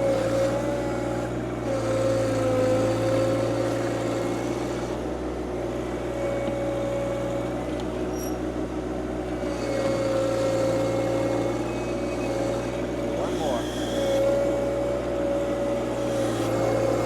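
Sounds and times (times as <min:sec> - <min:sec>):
hydraulic whine: 0:09.5 - 0:17.0
tractor diesel engine running: 0:13.0 - 0:14.2.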